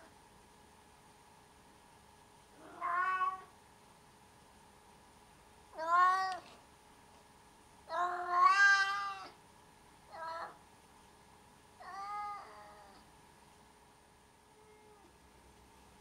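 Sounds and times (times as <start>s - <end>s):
kitten meowing: 2.6s - 3.5s.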